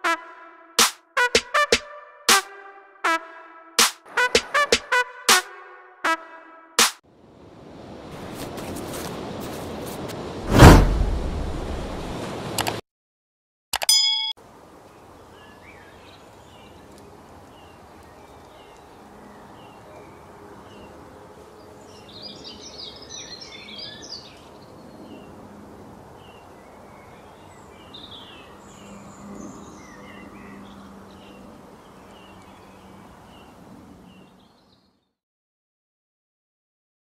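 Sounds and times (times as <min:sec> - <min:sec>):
birds chirping and singing: 0:21.9 - 0:24.4.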